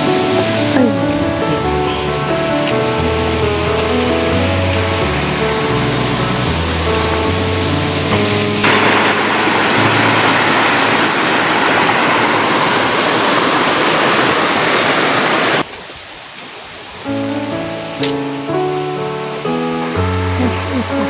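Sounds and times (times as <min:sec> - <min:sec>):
background music: 0:00.0 - 0:11.2
waterfall rushing: 0:00.0 - 0:21.0.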